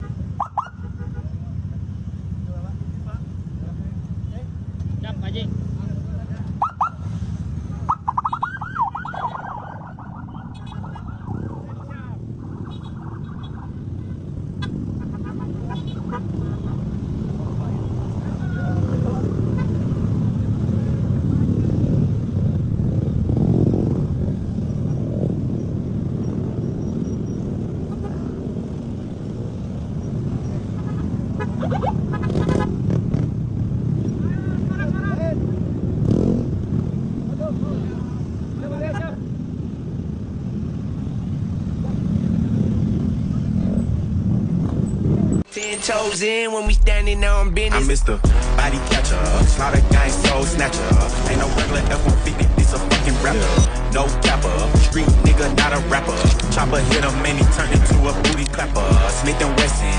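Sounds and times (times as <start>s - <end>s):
low traffic rumble: 0.0s - 59.9s
electronic siren yelping: 0.4s - 0.9s, 6.6s - 7.0s, 7.8s - 14.0s.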